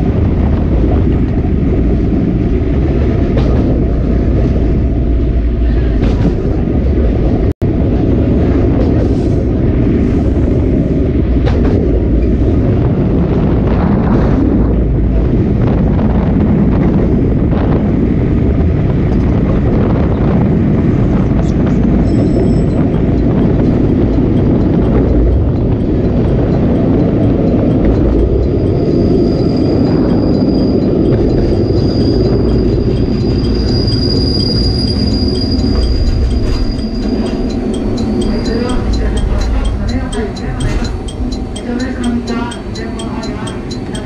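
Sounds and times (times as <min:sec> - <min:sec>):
train wheels rumbling: 0:00.0 - 0:44.0
steel wheels squealing: 0:21.4 - 0:44.0.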